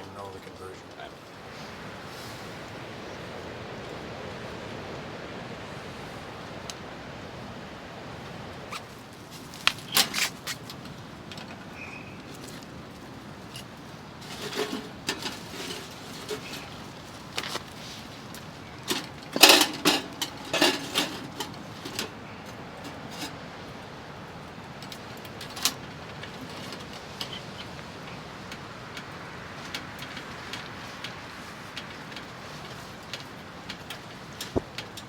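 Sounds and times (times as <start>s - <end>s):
tent walls rattling: 8.7s - 35.0s.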